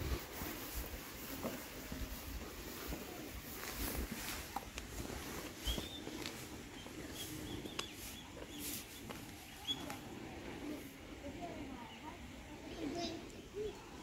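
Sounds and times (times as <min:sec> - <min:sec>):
small bird chirping: 0:05.5 - 0:10.1.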